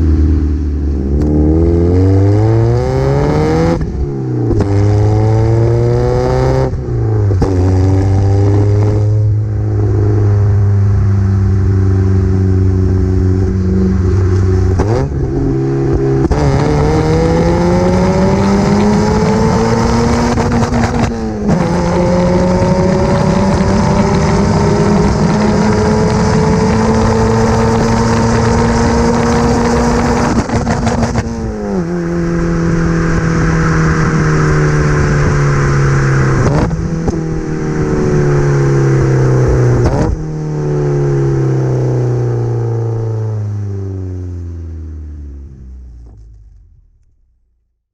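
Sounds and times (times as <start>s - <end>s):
gear changes: 12.2s - 40.3s
raspy car engine accelerating: 12.6s - 40.2s.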